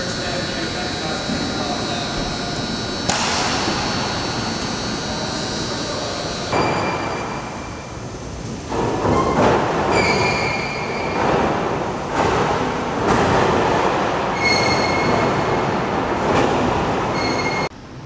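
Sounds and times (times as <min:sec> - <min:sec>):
high wind whistle: 0:00.0 - 0:08.1.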